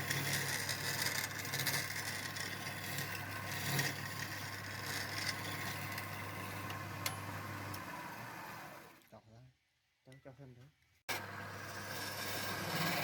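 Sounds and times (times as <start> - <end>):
rough scraping grinding: 0.0 - 7.0, 11.6 - 13.0
power tool motor running: 11.1 - 13.0.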